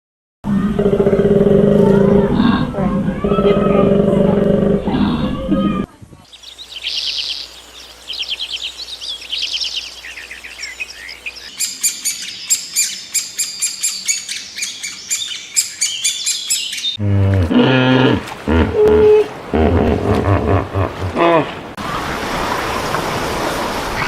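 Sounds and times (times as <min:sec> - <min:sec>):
songbirds trilling: 0:06.2 - 0:17.0
high rapid bird chirps: 0:06.3 - 0:17.0
deep call: 0:17.0 - 0:21.7.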